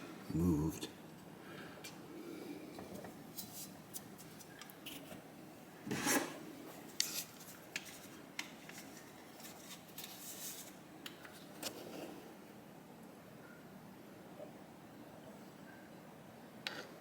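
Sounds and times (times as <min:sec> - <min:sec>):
metal scrape: 0:05.9 - 0:06.4.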